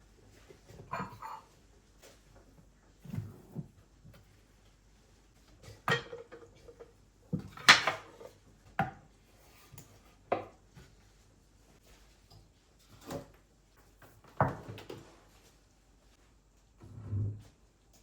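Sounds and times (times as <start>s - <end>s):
household knocks and clatters: 5.5s - 11.0s.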